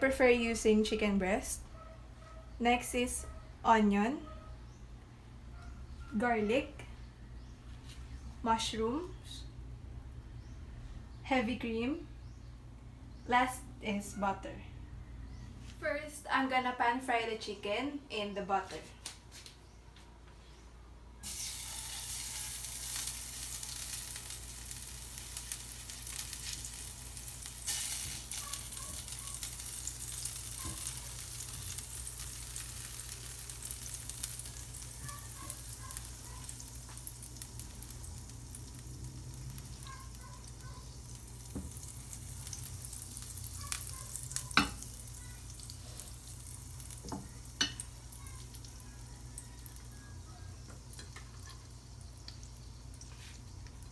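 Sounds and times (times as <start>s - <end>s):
chicken sizzling in a pan: 21.2s - 53.9s.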